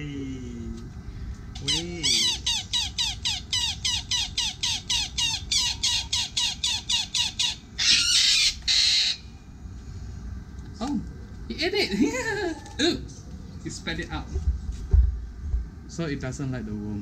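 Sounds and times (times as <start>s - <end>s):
bird chattering calls: 1.5s - 9.3s.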